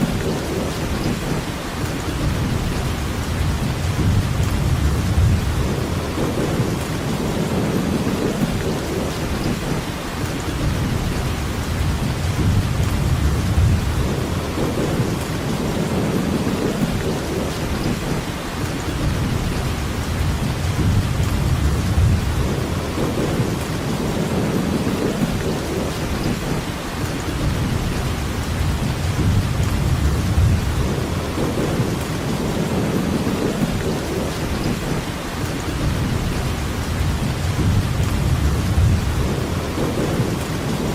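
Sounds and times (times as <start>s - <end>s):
heavy rain hiss: 0.0s - 40.9s
low rumble: 2.2s - 9.1s, 10.6s - 17.5s, 19.0s - 25.5s, 27.4s - 34.3s, 35.8s - 40.9s.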